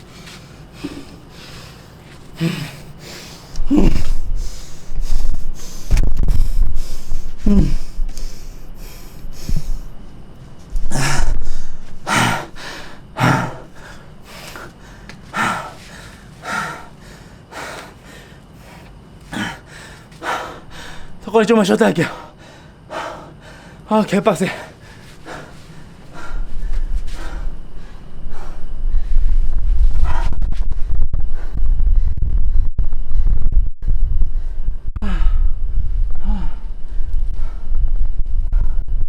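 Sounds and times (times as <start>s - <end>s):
man breathing hard and grunting: 0.0s - 10.0s, 10.8s - 21.2s, 22.0s - 29.3s, 35.0s - 35.6s, 36.2s - 37.8s
loud low bumps and rumbling: 26.3s - 39.0s.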